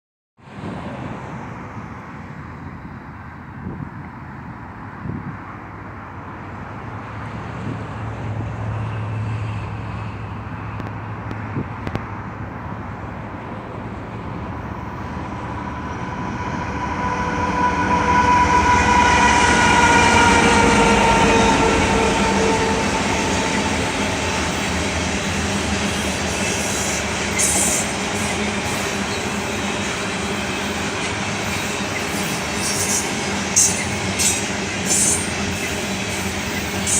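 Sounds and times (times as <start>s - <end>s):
diesel locomotives rumbling: 0.4s - 36.9s.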